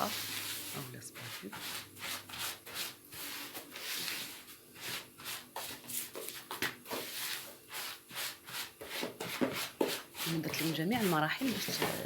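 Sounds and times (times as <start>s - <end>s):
spoon scraping sugar in a bowl: 0.0s - 12.0s.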